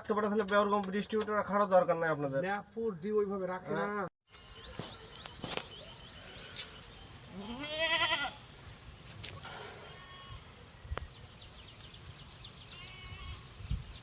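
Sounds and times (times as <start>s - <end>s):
animal bleating: 7.3s - 8.4s, 9.8s - 10.5s, 12.7s - 13.5s.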